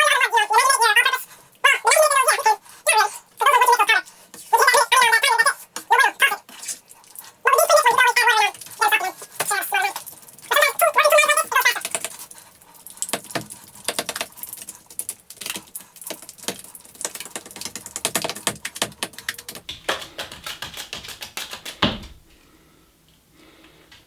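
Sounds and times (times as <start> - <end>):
loud knock: 21.6 - 22.2.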